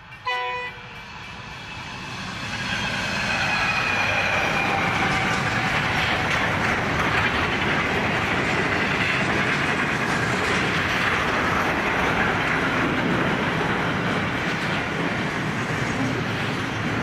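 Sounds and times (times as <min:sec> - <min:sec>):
steel wheels running on rails: 0:00.0 - 0:17.0.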